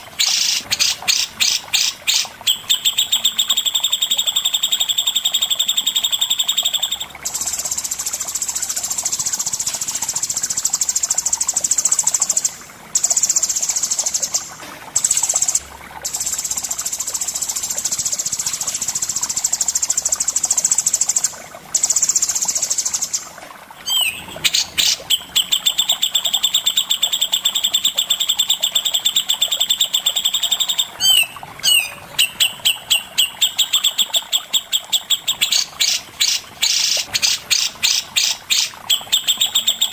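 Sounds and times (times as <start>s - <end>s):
songbird high-pitched trills: 0.2s - 23.2s, 23.8s - 39.9s
songbird clear chirps: 23.8s - 28.2s, 29.9s - 33.9s.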